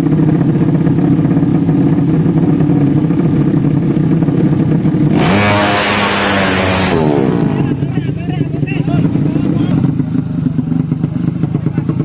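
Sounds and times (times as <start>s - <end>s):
motorcycle engine revving hard: 0.0s - 12.0s
motorcycle engines idling: 0.0s - 12.0s.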